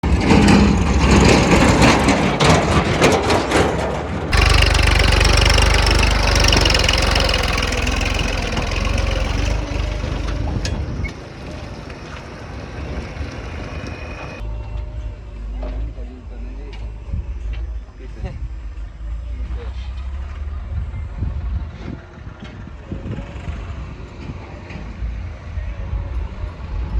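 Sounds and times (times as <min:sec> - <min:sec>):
knocks and clatter: 0:02.4 - 0:10.7
diesel engines running: 0:04.3 - 0:14.4.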